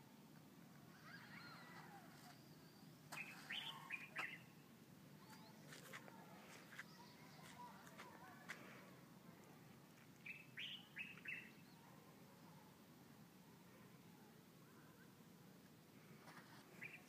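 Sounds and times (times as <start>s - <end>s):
small birds chirping: 0.9s - 12.8s, 16.3s - 17.0s.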